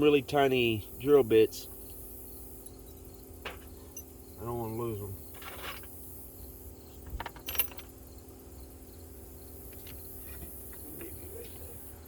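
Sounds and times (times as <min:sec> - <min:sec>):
crickets chirring: 0:00.0 - 0:12.0
steady low hum: 0:00.0 - 0:12.0
small metal tools clinking: 0:02.6 - 0:04.2, 0:05.2 - 0:06.0, 0:07.1 - 0:08.0.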